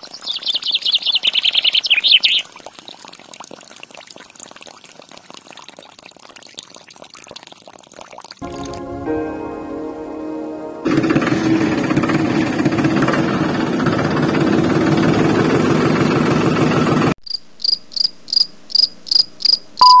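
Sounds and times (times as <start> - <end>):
water pump motor buzzing: 10.9 - 17.2
short high chirps: 19.8 - 20.0.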